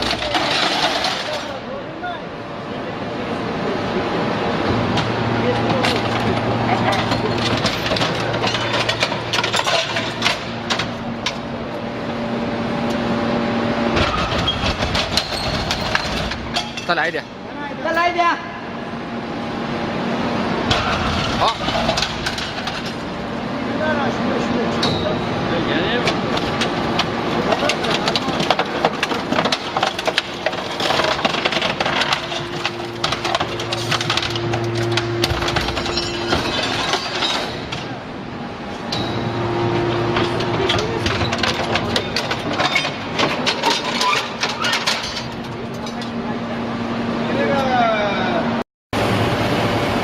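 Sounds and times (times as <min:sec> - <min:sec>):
scrap metal crunching and clanking: 0:00.0 - 0:01.7, 0:04.6 - 0:12.2, 0:13.9 - 0:17.4, 0:20.6 - 0:23.4, 0:25.7 - 0:46.4
hydraulic power unit hum: 0:00.0 - 0:50.0
steady machine drone: 0:02.3 - 0:50.0.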